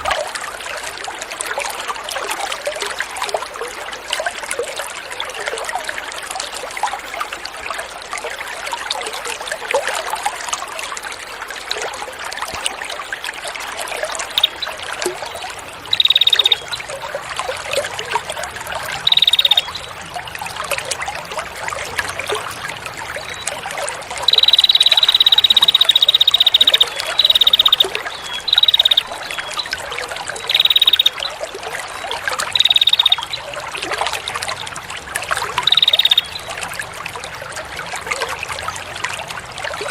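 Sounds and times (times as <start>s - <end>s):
water trickling and splashing: 0.0s - 39.9s
songbird buzzing trills: 15.9s - 16.8s, 19.0s - 19.8s, 24.2s - 29.5s, 30.4s - 31.2s, 32.5s - 33.3s, 35.6s - 36.4s.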